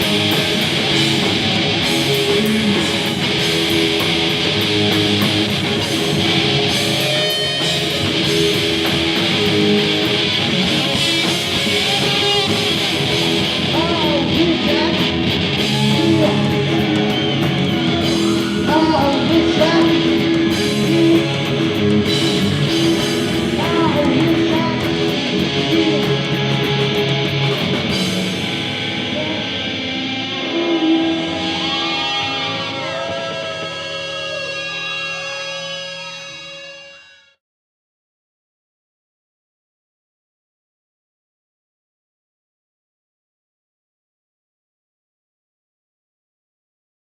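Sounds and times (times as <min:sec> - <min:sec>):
live rock band playing: 0:00.0 - 0:37.0
electric guitar bending notes: 0:00.0 - 0:37.4.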